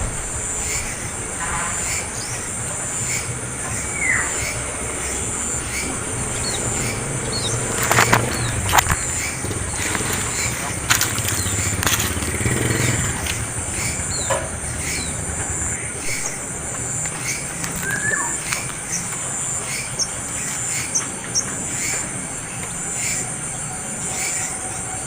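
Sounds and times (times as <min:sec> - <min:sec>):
young bird begging chirps: 0:01.8 - 0:13.0, 0:17.1 - 0:22.0.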